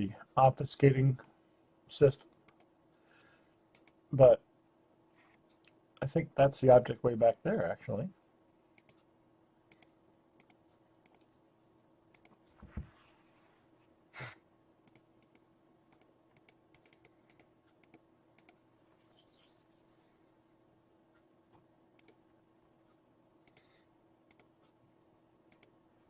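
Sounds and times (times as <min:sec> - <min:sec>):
low steady hum: 0:00.0 - 0:26.0
faint computer clicks: 0:03.7 - 0:04.0, 0:08.8 - 0:09.1, 0:09.7 - 0:11.3, 0:12.1 - 0:12.6, 0:14.8 - 0:18.6, 0:21.5 - 0:22.2, 0:23.4 - 0:24.8, 0:25.5 - 0:25.8.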